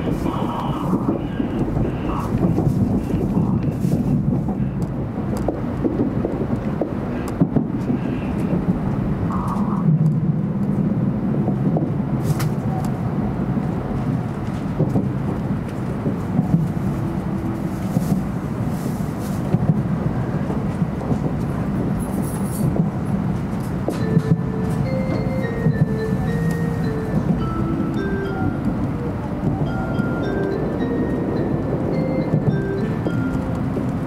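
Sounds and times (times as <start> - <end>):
train running rumble: 0.0 - 34.0.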